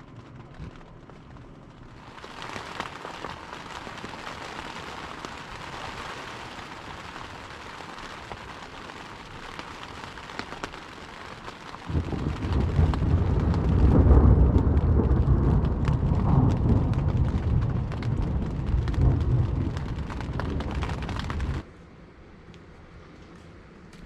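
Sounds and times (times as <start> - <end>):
rain pattering: 0.0 - 21.7
loud low rumble: 11.9 - 21.6.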